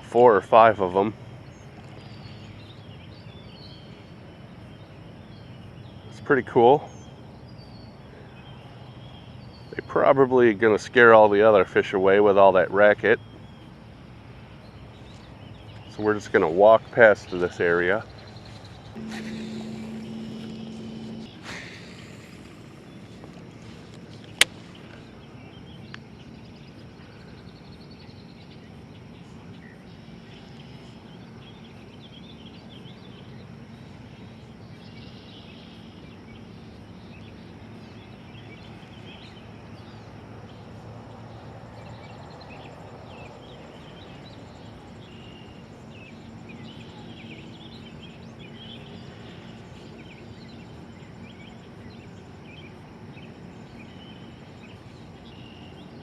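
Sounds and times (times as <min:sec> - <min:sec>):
faint bird chirps: 0:18.0 - 0:23.2
low steady hum: 0:18.2 - 0:27.4.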